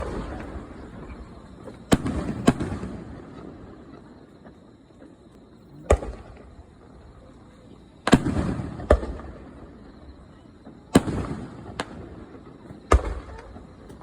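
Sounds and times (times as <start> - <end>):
firework shells bursting: 0.0 - 4.6.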